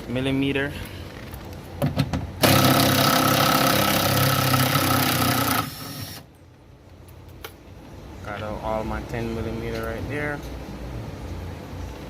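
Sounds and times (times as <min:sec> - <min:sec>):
power tool running: 0:02.4 - 0:06.3.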